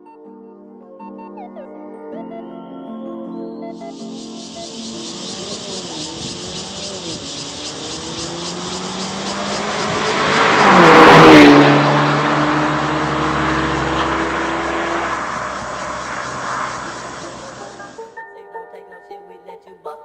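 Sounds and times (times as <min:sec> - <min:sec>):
car driving past: 0:03.8 - 0:18.0.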